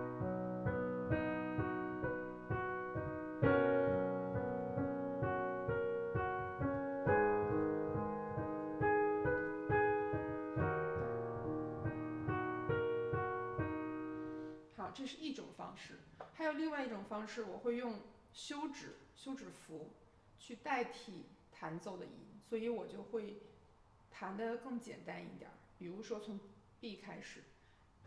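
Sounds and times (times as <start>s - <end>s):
piano broken chords: 0.0s - 14.6s.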